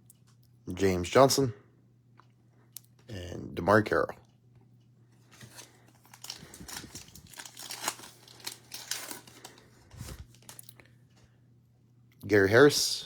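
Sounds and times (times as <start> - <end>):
cellophane wrapper crinkling: 5.2 - 10.9
cellophane tearing: 5.3 - 10.8.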